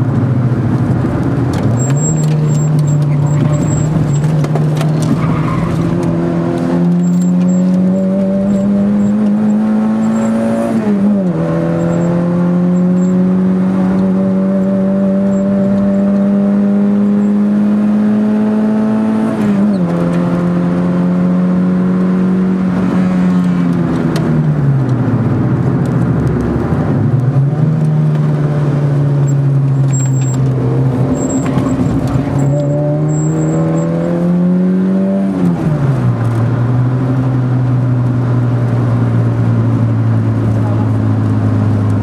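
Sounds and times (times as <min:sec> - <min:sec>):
car engine accelerating: 0:00.0 - 0:42.0.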